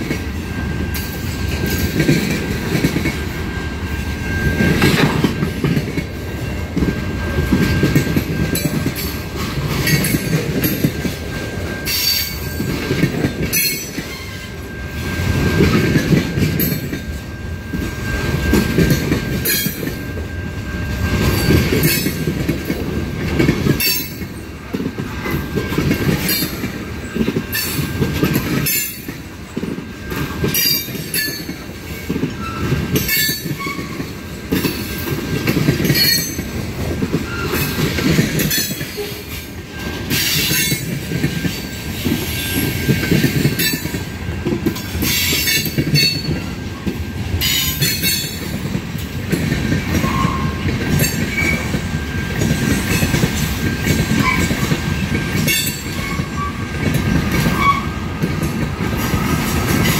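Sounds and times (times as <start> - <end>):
railway cars rumbling: 0.0 - 59.9.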